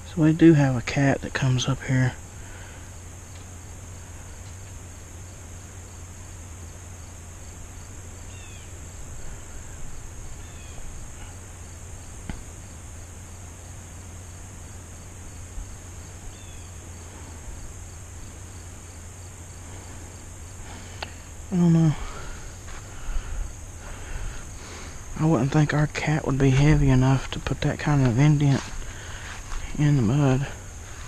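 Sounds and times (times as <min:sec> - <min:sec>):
crickets and insects trilling: 0:00.0 - 0:31.0.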